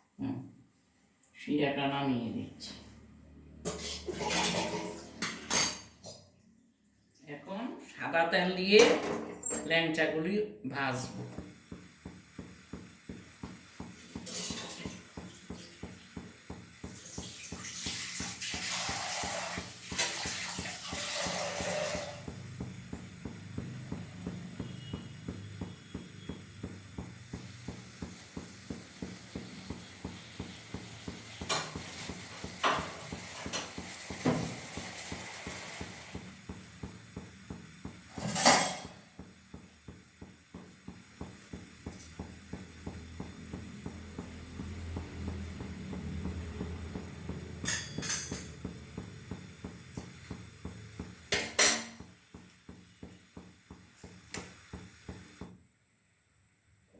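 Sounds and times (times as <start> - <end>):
pots and utensils clanking: 3.6 - 6.0, 12.7 - 39.6, 41.2 - 52.1.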